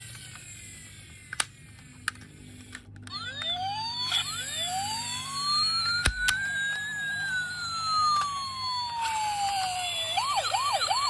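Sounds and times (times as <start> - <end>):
toy electronic siren wailing: 3.0 - 11.0
sharp clicks: 5.9 - 6.5.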